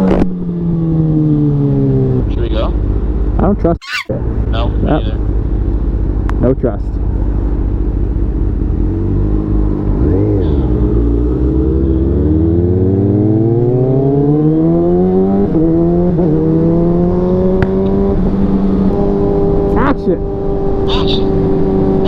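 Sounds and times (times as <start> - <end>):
motorcycle engine accelerating: 8.4 - 22.0.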